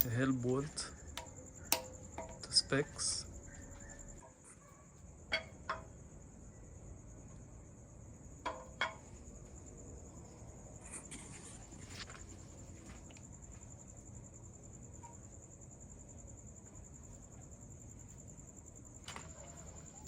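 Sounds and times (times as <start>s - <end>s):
metallic clinks: 0.0s - 4.1s
crickets chirping: 0.0s - 20.0s.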